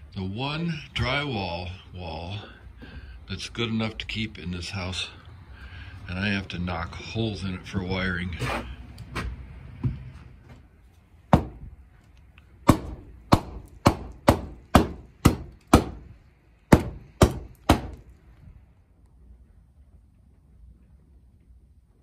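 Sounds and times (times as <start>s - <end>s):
hammer striking drywall: 11.3s - 11.6s, 12.6s - 16.1s, 16.7s - 18.1s.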